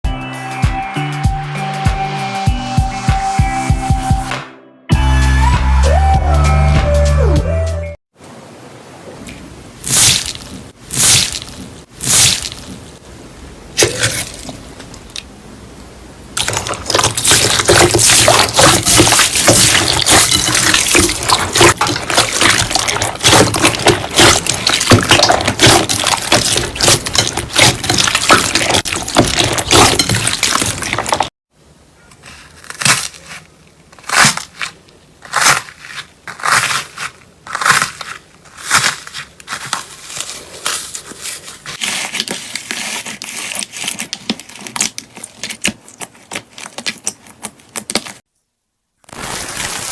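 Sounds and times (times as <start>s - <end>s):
slime squishing by hand: 16.4s - 31.3s, 32.0s - 48.2s.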